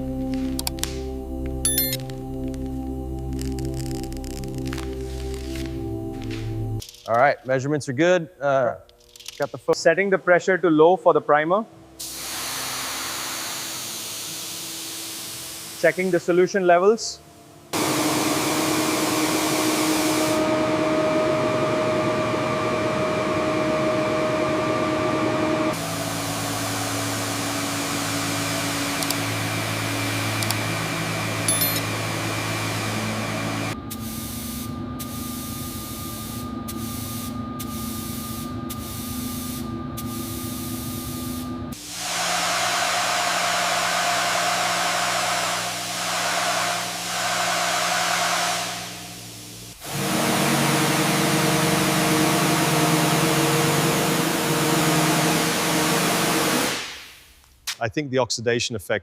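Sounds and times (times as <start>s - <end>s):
machine hum: 0.0s - 7.3s, 9.7s - 56.8s
spray gun hissing: 12.0s - 16.3s, 31.9s - 50.4s.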